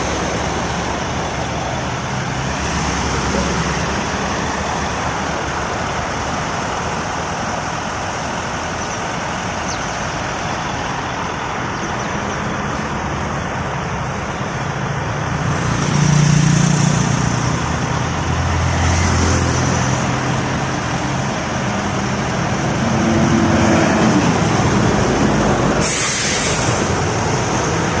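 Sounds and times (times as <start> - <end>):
road noise: 0.0 - 28.0
short air hisses: 25.8 - 27.0.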